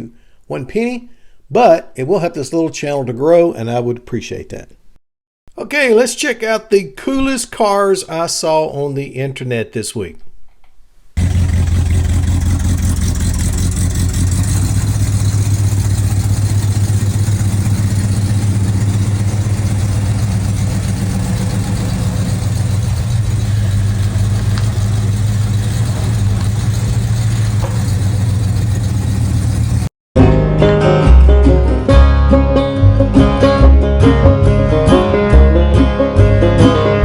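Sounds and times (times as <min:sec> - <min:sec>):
car engine idling: 0:11.2 - 0:29.9.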